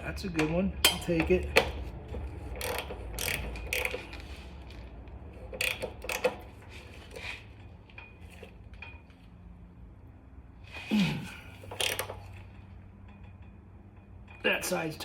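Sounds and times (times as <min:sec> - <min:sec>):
wrench clinking on metal: 0:00.4 - 0:01.8, 0:02.6 - 0:04.2.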